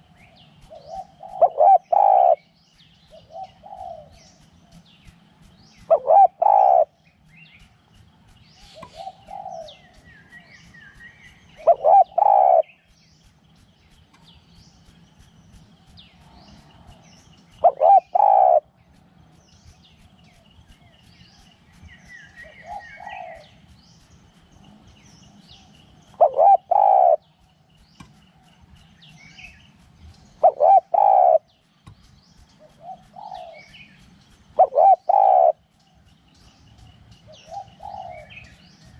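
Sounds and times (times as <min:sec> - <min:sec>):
small birds chirping faintly: 0:00.0 - 0:38.9
dove cooing: 0:00.6 - 0:02.5, 0:03.1 - 0:04.8, 0:05.8 - 0:07.0, 0:08.6 - 0:10.0, 0:11.6 - 0:12.8, 0:17.6 - 0:18.7, 0:22.5 - 0:23.6, 0:26.1 - 0:27.3, 0:30.4 - 0:31.5, 0:32.6 - 0:33.8, 0:34.6 - 0:35.6, 0:37.4 - 0:38.5.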